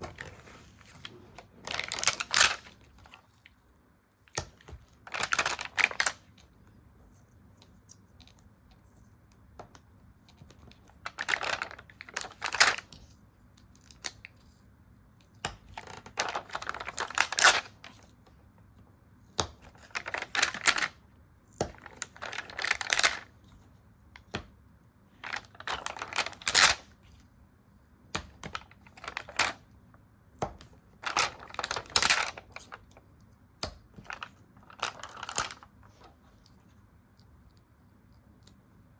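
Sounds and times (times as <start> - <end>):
stickers and paper rustling: 0.0 - 3.6, 4.3 - 6.4, 10.3 - 14.6, 15.5 - 18.2, 19.5 - 21.0, 21.6 - 24.5, 25.2 - 27.1, 28.2 - 29.6, 30.4 - 36.8.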